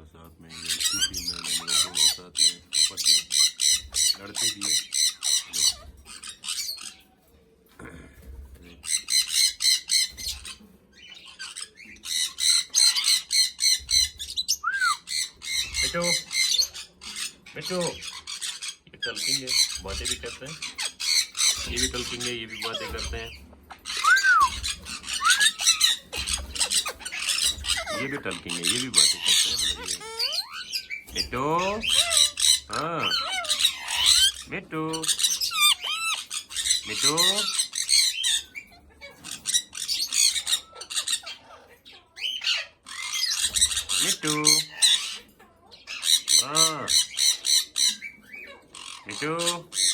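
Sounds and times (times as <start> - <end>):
parrot squawking: 0.2 - 7.3, 8.6 - 49.9
parrot whistle: 14.5 - 15.1, 23.9 - 28.0.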